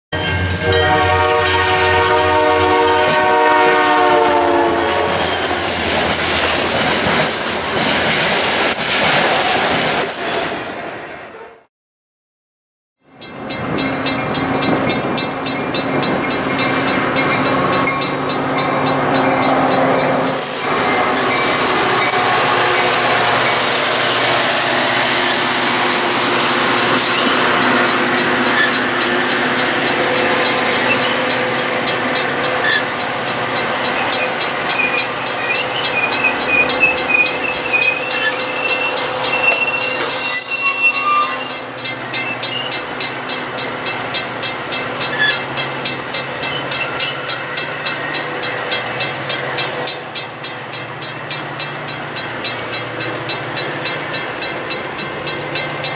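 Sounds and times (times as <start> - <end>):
train cars rolling on rails: 0.2 - 11.6, 13.1 - 55.9
high wheel squeals: 17.7 - 29.0, 29.6 - 31.5, 33.7 - 42.8, 45.0 - 55.9.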